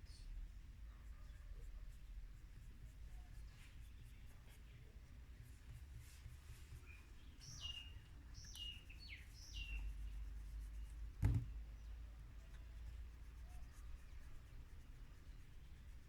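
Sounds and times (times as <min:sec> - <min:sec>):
dull thump: 0:11.2 - 0:11.6.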